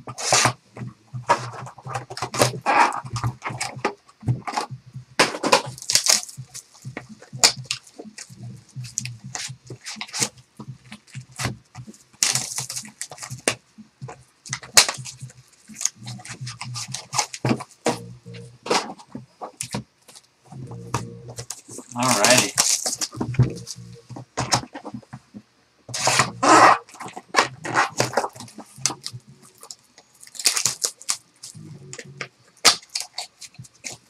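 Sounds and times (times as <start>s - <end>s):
cardboard and wrappers tearing: 5.5s - 6.8s, 12.2s - 13.6s, 21.4s - 23.3s, 26.0s - 31.6s.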